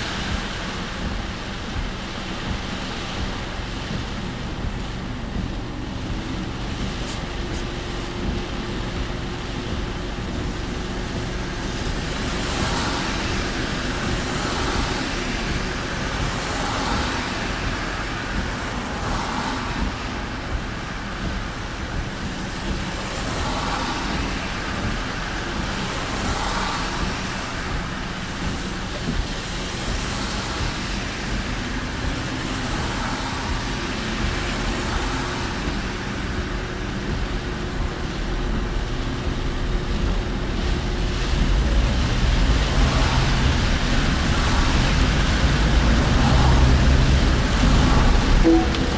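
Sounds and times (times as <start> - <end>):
rain and road noise in car: 0.0 - 48.9
low steady hum: 48.4 - 48.9.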